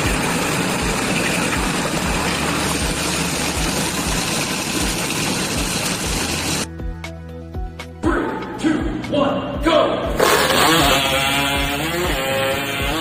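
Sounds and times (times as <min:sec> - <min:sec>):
machine engine running: 0:00.0 - 0:06.7, 0:10.2 - 0:12.3.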